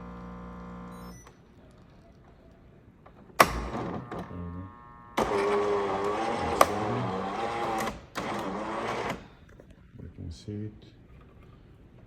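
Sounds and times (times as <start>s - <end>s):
espresso machine rough buzz: 0.0s - 1.1s.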